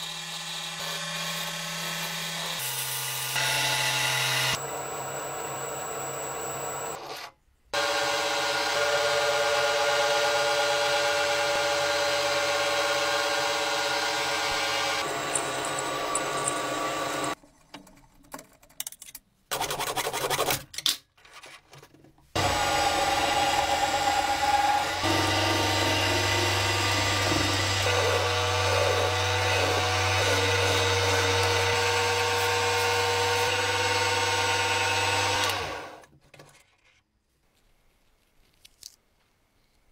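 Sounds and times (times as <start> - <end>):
power tool cutting wood: 0.0 - 17.4, 22.4 - 36.0
motor whine: 3.4 - 7.0, 11.7 - 17.4.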